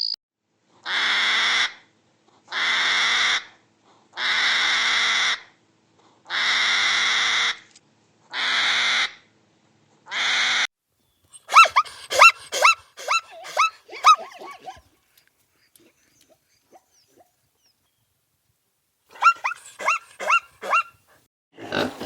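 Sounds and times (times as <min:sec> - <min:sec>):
long harsh bird calls: 0:11.0 - 0:14.8, 0:19.1 - 0:21.0.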